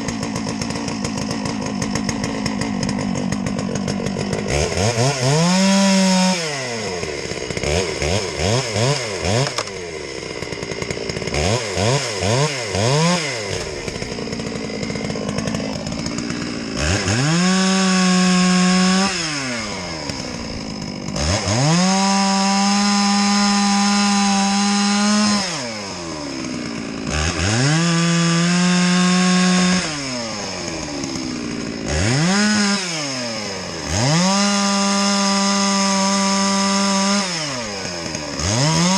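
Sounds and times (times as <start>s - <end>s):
chainsaw cutting branches: 0.0s - 38.9s.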